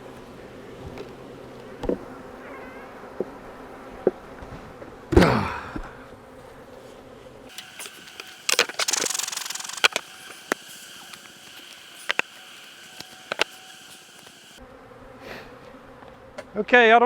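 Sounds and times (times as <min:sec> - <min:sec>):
sharp clicks: 0:07.5 - 0:10.6.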